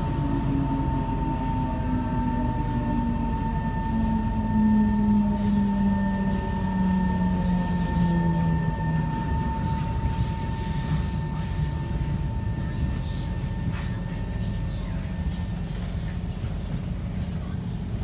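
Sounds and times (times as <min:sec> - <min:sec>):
traction motor whine: 0:00.0 - 0:12.5
rumble of wheels on rails: 0:00.0 - 0:18.0
steady high hum: 0:00.0 - 0:18.0.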